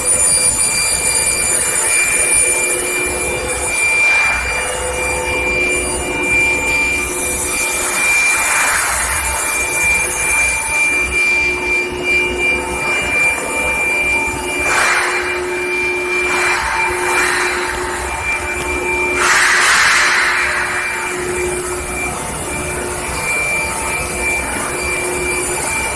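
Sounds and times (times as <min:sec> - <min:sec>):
continuous machine noise: 0:00.0 - 0:25.9
faint steady tones: 0:00.0 - 0:25.9
furnace high-pitched whine: 0:00.0 - 0:25.9.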